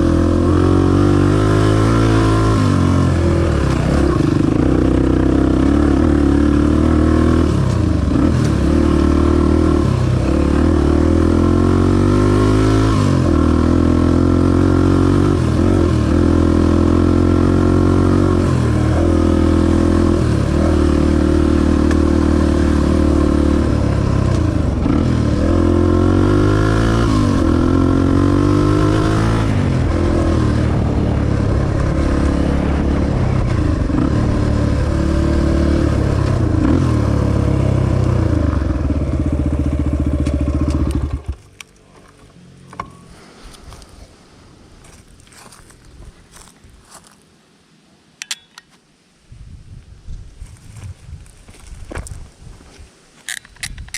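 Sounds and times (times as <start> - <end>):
dirt bike engine revving: 0.0 - 41.5.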